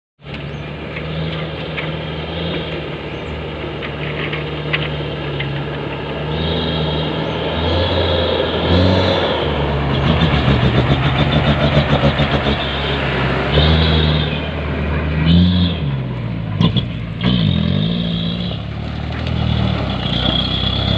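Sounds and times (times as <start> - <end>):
diesel truck engine running: 0.2 - 20.9.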